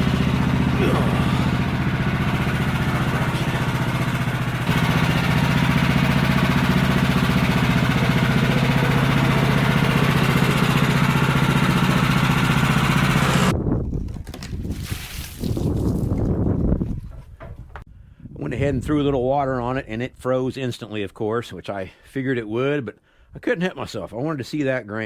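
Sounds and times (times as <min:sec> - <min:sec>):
small gas engine running: 0:00.0 - 0:13.5.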